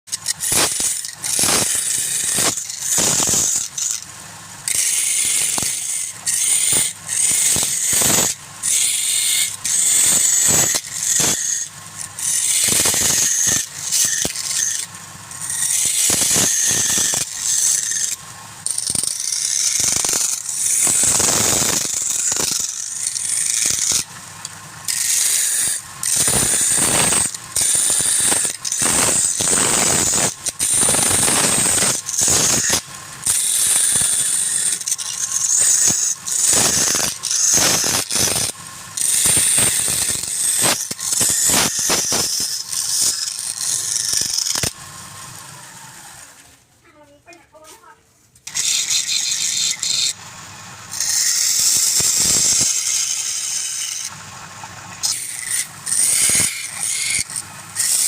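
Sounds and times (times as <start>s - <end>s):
gouge scraping wood on a lathe: 0.1s - 46.4s, 48.5s - 58.0s.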